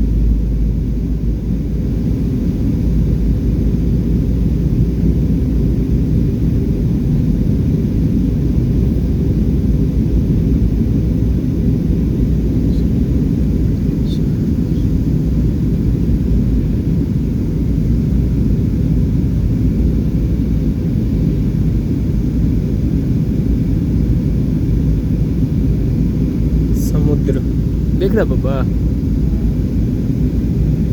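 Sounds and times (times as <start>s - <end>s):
aeroplane cabin engine rumble: 0.0s - 30.9s.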